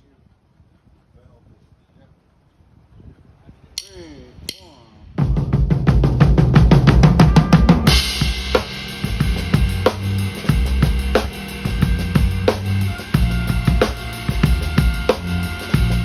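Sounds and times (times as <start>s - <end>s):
fast drum hits: 4.6s - 16.0s
live rock band playing: 6.6s - 16.0s.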